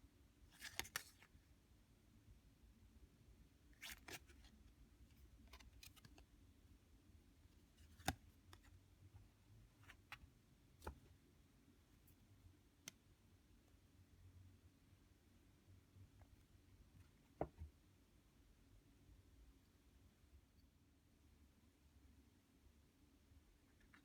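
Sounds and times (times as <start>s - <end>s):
cards clicking and tapping: 0.6s - 1.2s, 7.9s - 8.7s.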